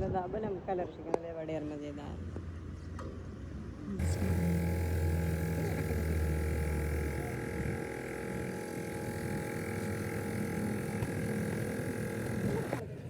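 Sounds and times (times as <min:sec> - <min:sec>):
deep machine hum: 0:04.0 - 0:13.0
faint steady tones: 0:04.0 - 0:13.0.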